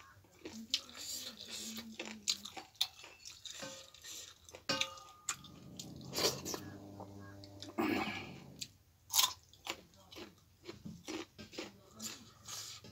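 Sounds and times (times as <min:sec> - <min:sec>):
person chewing and crunching food: 0:00.0 - 0:12.9
low hum: 0:05.3 - 0:08.7.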